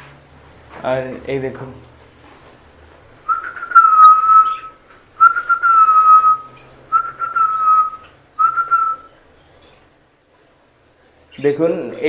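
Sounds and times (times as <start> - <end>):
long whistled notes: 3.3 - 9.1.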